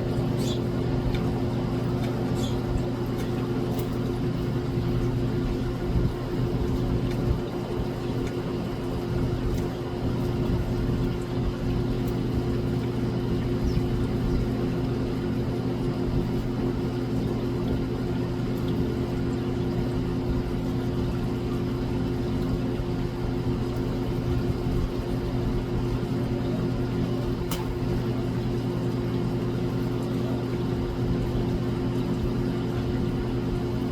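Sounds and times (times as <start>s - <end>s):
machine humming: 0.0s - 15.8s.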